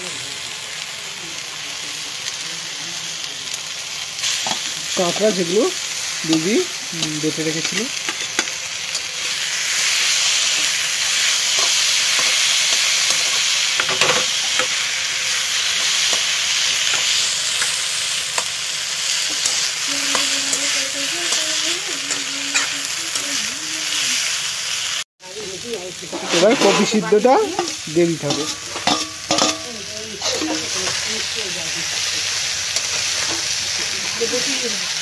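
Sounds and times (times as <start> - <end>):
metal spatula scraping pan: 26.1 - 31.1.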